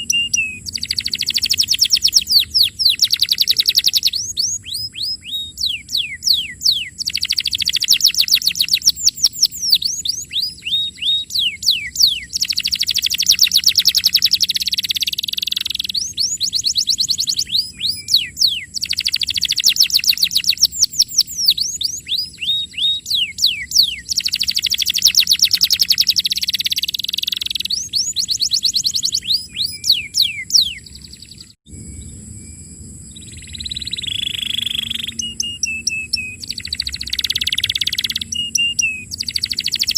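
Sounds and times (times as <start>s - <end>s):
scattered bird chirps: 0.0s - 32.4s, 33.1s - 39.9s
canary singing trills: 0.0s - 39.9s
low hum: 30.8s - 39.8s.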